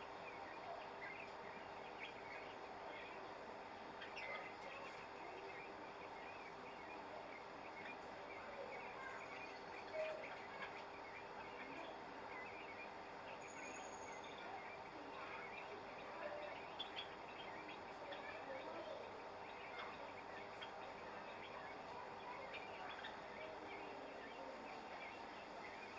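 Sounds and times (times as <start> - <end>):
birds chirping: 0.0 - 25.9
steady low hum: 0.0 - 25.9.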